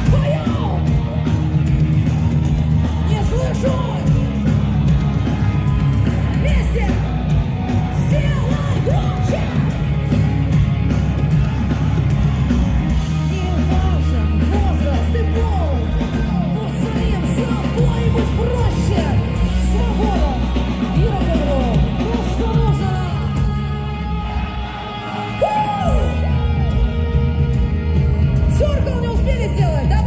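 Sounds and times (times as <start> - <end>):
rock band playing live: 0.0 - 30.0
voices singing and yelling: 0.0 - 30.0.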